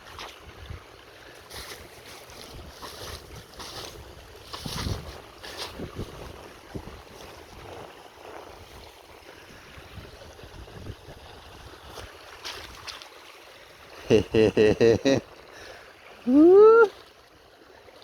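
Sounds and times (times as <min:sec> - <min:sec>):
wind hiss on microphone: 0:00.4 - 0:12.2.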